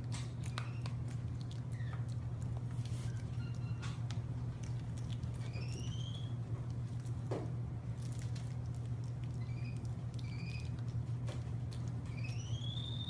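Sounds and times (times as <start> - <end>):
steady low hum: 0.0 - 13.0
small animal squeaking: 9.4 - 10.8, 12.1 - 13.0.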